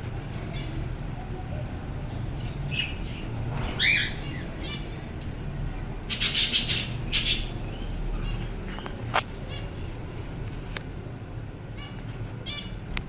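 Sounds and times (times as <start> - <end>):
budgerigars chirping: 2.4 - 5.0, 6.1 - 9.0, 11.5 - 12.8
loud squawks: 6.1 - 7.6.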